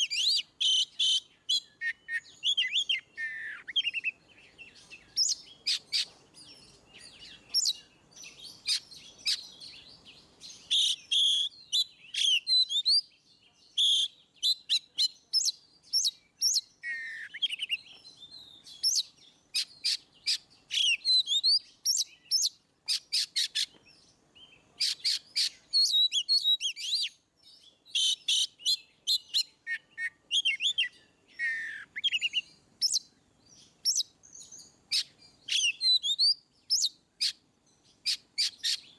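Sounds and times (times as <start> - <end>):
bird singing clicks and whistles: 7.2 - 7.8, 27.9 - 33.1, 33.8 - 37.4.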